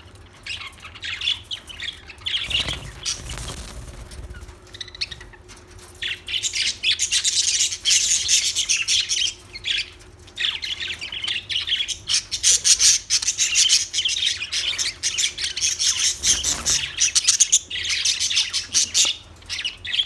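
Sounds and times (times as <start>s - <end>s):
budgerigars chirping and chattering: 2.3s - 3.7s, 6.4s - 20.0s.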